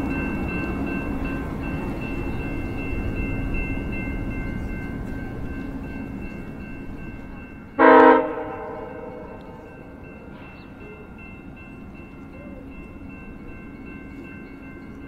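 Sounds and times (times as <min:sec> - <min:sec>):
train rumbling with whine: 0:00.0 - 0:15.0
train horn blast: 0:07.8 - 0:10.0.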